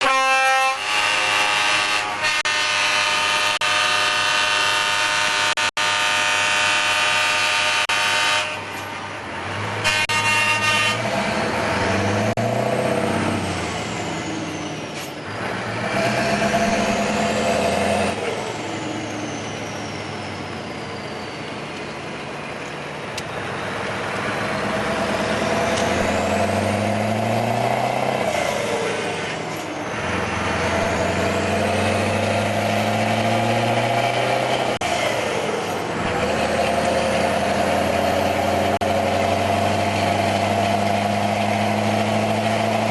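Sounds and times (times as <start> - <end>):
truck air horn: 0.0 - 8.9, 9.8 - 11.4
diesel truck accelerating: 7.8 - 42.9.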